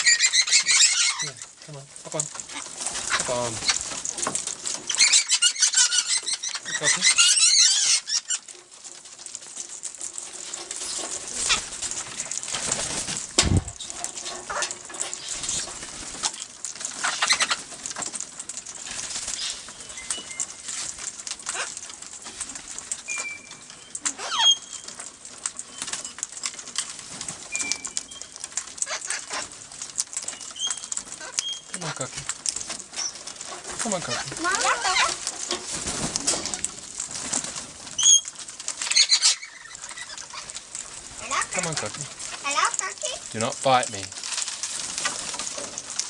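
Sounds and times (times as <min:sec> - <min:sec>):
parrot squawk: 0:00.0 - 0:01.4, 0:04.9 - 0:08.4, 0:21.5 - 0:21.8, 0:24.1 - 0:24.7, 0:34.0 - 0:35.2, 0:38.9 - 0:40.5
parrots flapping wings: 0:00.0 - 0:46.0
dull thump: 0:13.4 - 0:13.8.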